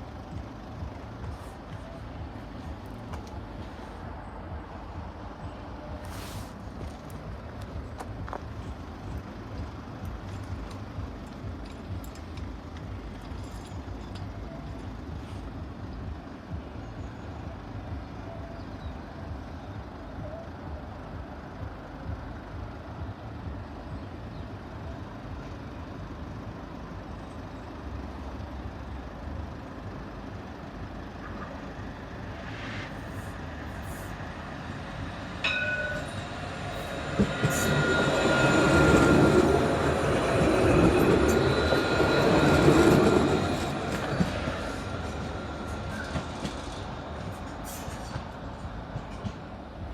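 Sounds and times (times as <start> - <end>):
low rumble of vehicles: 0.0 - 49.9
train approaching: 0.0 - 49.9
train wheels squealing: 32.3 - 49.4.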